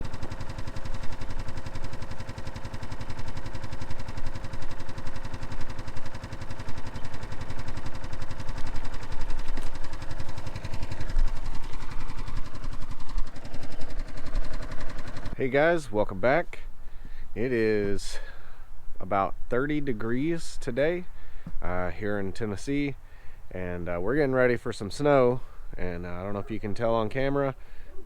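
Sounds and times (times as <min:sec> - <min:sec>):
engine idling: 0:00.0 - 0:18.5.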